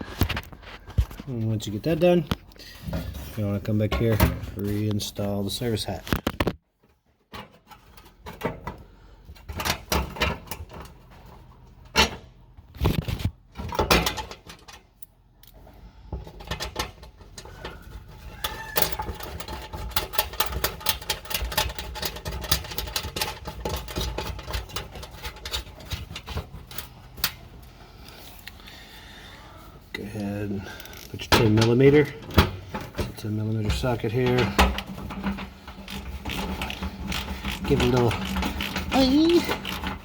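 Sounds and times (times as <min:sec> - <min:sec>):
hatch knocking and rattling: 0:33.7 - 0:40.0.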